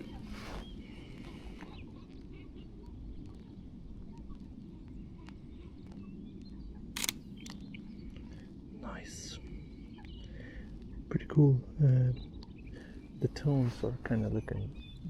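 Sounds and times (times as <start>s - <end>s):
faint bird calls: 0.0s - 15.0s
light clicks: 1.2s - 8.5s
sharp click: 7.0s - 7.7s.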